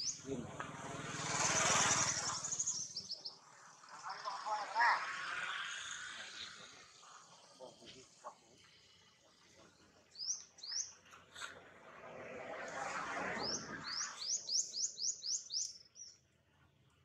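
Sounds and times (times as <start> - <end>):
bird chirping: 0.0 - 0.4, 1.4 - 8.0, 9.6 - 11.5, 13.4 - 17.0.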